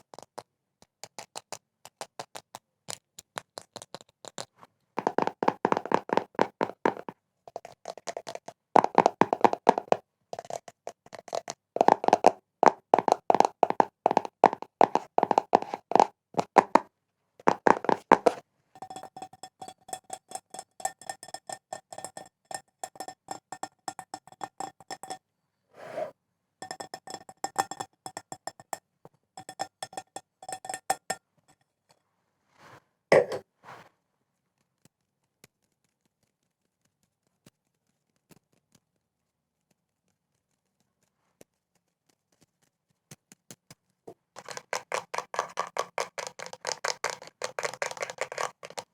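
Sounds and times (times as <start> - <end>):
tapping on ringing hard object: 17.6 - 25.2, 26.6 - 28.8, 29.4 - 31.2.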